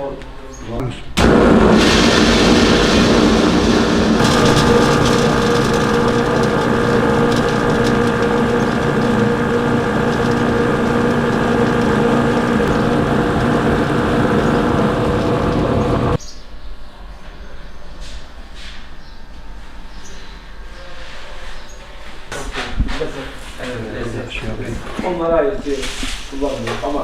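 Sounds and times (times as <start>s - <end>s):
electric machine humming and whining: 1.2s - 16.2s.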